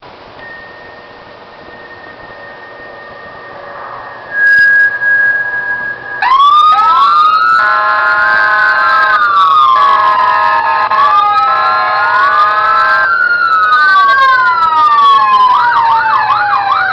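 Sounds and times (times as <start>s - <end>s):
loud steady beep: 0.4s - 6.4s
electronic police siren: 0.4s - 16.9s.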